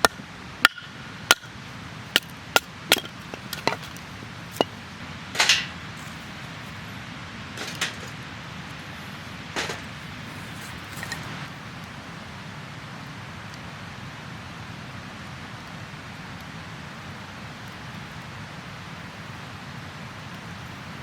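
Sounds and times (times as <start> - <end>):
firewood being chopped: 0.0 - 6.2
wood cracking: 2.1 - 4.7.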